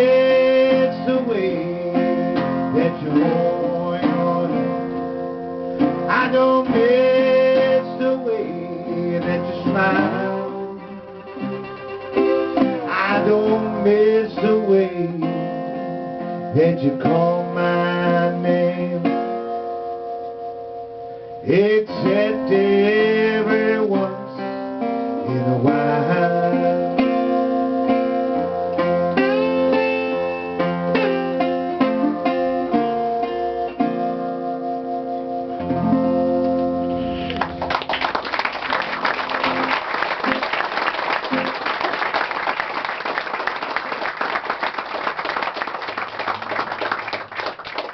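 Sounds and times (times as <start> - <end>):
slide resonator guitar: 0.0 - 37.7
audience applauding: 37.2 - 47.9.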